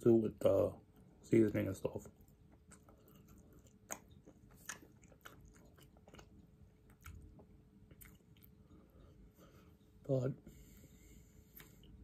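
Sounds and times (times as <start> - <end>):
chewing crunchy food: 0.9 - 8.9.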